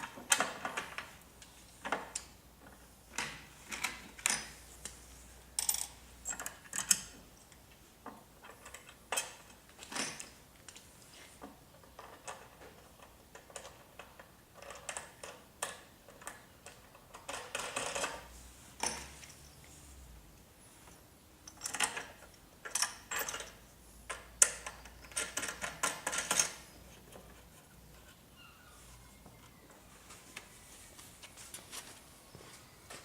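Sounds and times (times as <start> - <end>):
parts clicking and tapping: 20.4 - 28.2.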